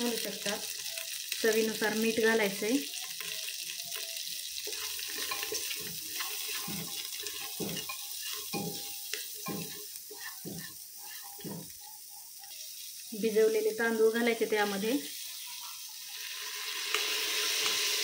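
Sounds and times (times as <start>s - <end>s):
peas and spices sizzling in ghee: 0.0s - 18.0s
spatula scraping pot base: 5.1s - 11.8s.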